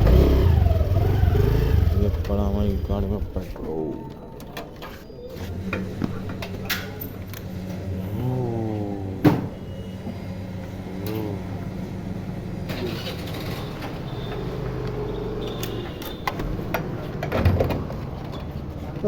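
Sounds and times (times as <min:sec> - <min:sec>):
vehicle engine running: 0:00.0 - 0:03.4.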